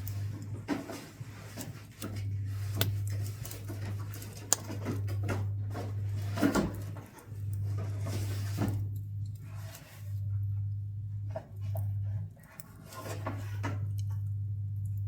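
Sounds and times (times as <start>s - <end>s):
steady low hum: 0.0s - 15.0s
wood crackling and popping in stove: 0.0s - 15.0s.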